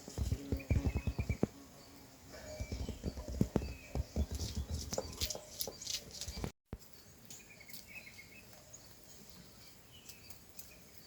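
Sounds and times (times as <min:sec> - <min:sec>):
faint outdoor ambience: 0:00.0 - 0:11.0
sharp knocks: 0:00.1 - 0:01.6, 0:02.6 - 0:05.8.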